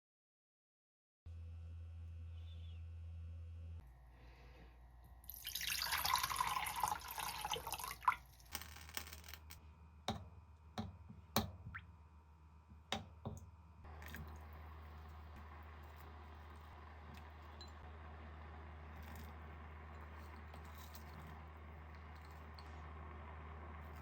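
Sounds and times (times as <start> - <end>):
kitchen tap running: 5.3 - 8.5.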